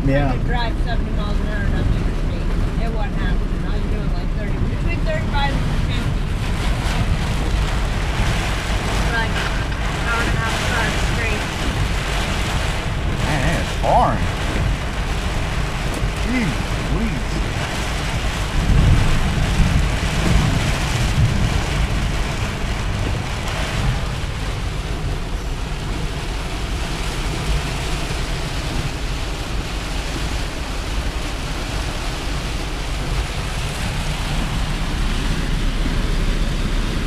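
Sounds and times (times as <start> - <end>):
truck engine drone: 0.0 - 37.0
tyre and wind noise: 4.5 - 37.0.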